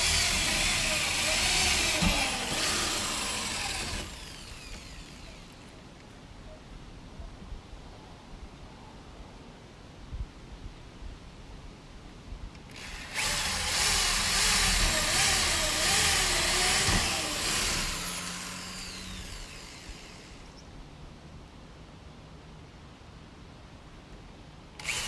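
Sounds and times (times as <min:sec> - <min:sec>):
power drill driving screw into wood: 0:00.0 - 0:05.6, 0:12.7 - 0:20.6, 0:24.8 - 0:25.0.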